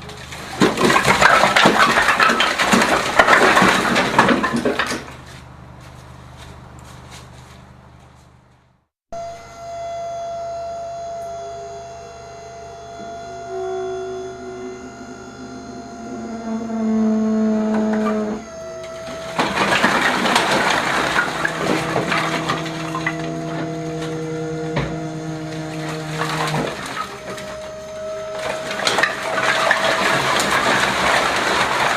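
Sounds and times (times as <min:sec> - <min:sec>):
loud rattling and clattering: 0:00.0 - 0:05.2, 0:18.9 - 0:25.0, 0:25.6 - 0:31.9
machinery motor running: 0:00.0 - 0:31.9.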